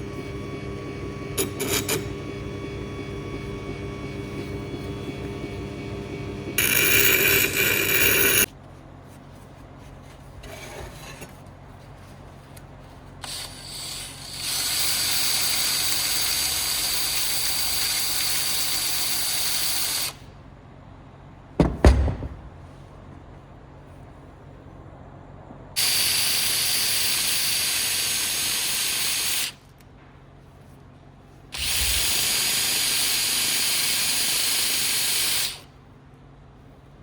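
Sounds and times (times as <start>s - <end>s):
motor hum: 0.0s - 8.5s, 31.5s - 34.8s
power tool grinding steel: 0.0s - 8.5s, 31.6s - 35.6s
sharp knocks: 21.6s - 22.6s.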